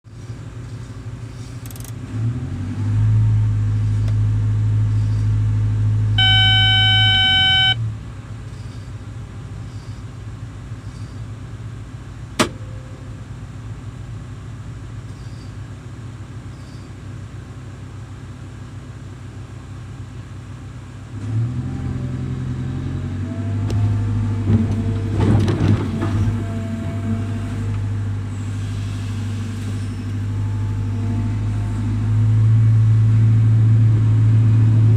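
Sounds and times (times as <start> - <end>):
diesel engine revving: 0.4 - 34.9
horn blast: 6.2 - 7.8.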